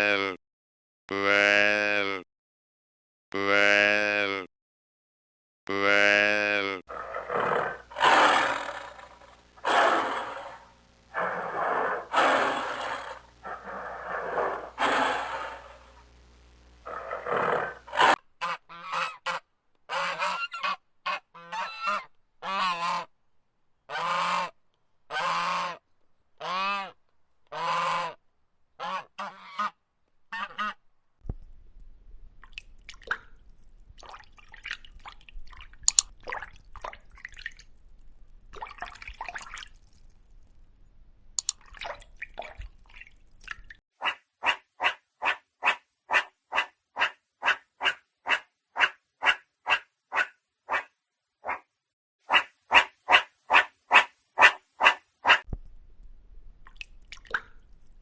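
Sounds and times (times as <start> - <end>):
harsh animal calls: 6.8 - 16.0, 16.8 - 23.1
short pitched animal calls: 6.9 - 16.0, 16.8 - 23.1
faint clicks: 35.8 - 36.2, 41.4 - 41.7.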